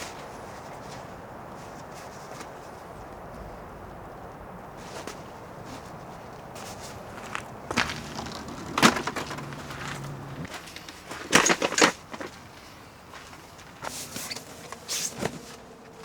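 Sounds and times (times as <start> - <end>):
sharp knocks and clatters: 7.3 - 12.3.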